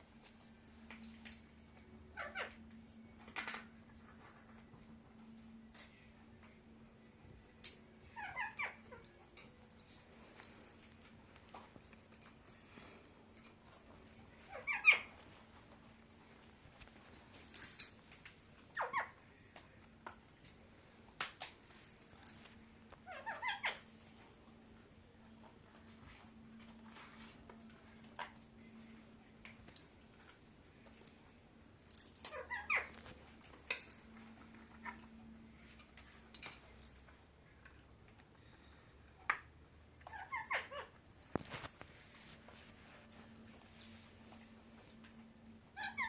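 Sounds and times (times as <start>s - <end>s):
parrot chirping: 8.2s - 9.0s, 14.5s - 15.1s, 23.0s - 23.8s, 32.3s - 32.9s, 40.1s - 40.9s.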